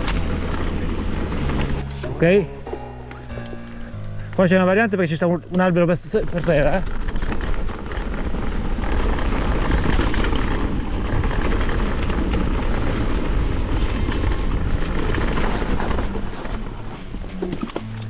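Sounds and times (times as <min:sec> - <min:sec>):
bike rattles and knocks: 0:04.3 - 0:18.0.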